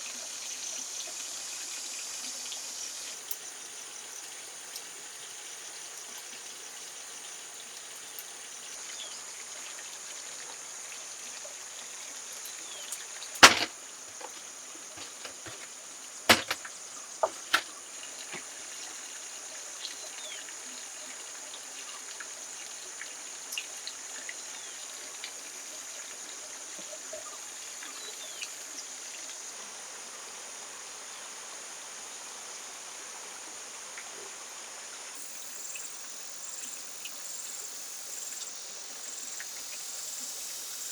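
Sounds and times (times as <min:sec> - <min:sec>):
sharp knocks: 0:13.4 - 0:14.4, 0:15.0 - 0:15.7, 0:16.3 - 0:16.6, 0:17.2 - 0:17.6
forest insects buzzing: 0:13.4 - 0:15.7, 0:35.2 - 0:40.9.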